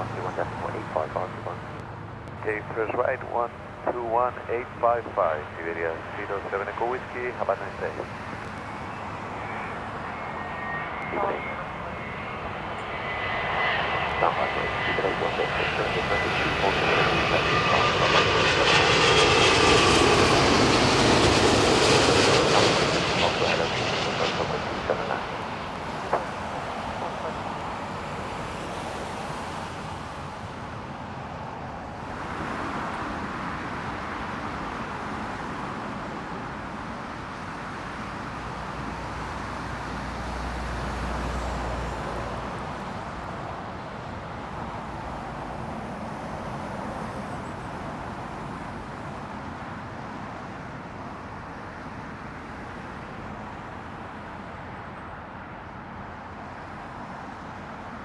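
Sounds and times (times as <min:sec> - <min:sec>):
jet engine rumble: 0:00.0 - 0:34.6.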